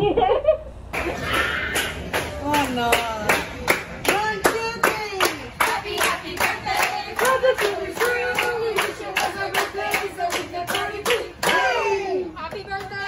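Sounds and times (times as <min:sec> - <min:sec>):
rhythmic hand clapping: 0:00.9 - 0:11.8
group singing together: 0:05.6 - 0:12.3.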